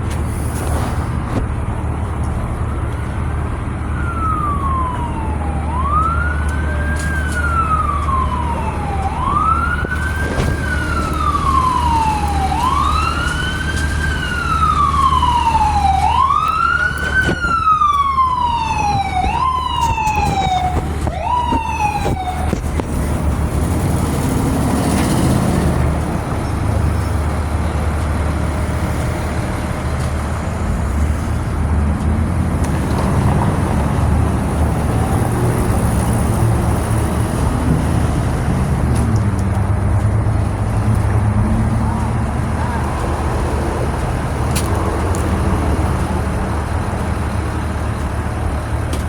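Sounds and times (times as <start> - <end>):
road noise: 0.0 - 49.0
truck engine rumble: 0.0 - 49.0
siren-like rising and falling tone: 3.9 - 22.8.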